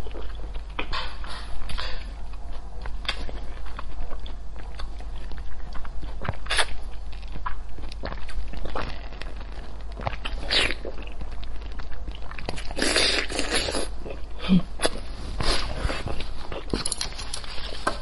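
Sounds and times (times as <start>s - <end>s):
person chewing: 0.0s - 18.0s.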